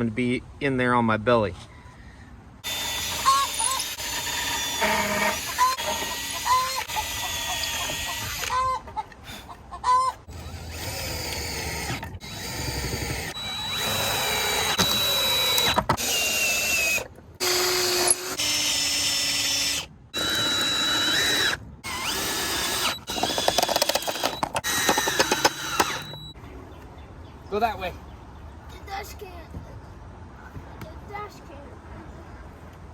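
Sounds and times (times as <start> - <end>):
power drill whining: 2.6 - 8.8, 10.3 - 26.4.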